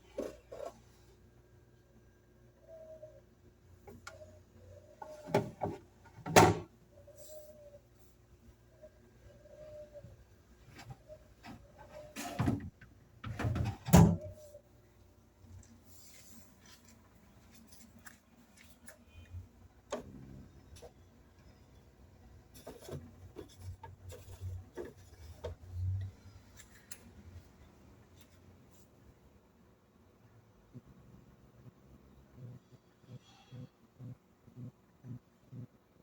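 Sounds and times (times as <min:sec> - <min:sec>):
refrigerator shelves knocking and scraping: 0:05.1 - 0:06.7, 0:10.7 - 0:14.4, 0:22.5 - 0:26.1.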